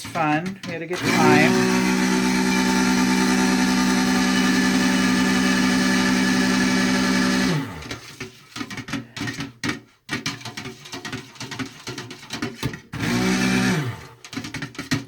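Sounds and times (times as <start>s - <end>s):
stick blender motor running: 0.0s - 8.3s, 12.9s - 14.4s
blender knocking in pot: 0.0s - 15.0s.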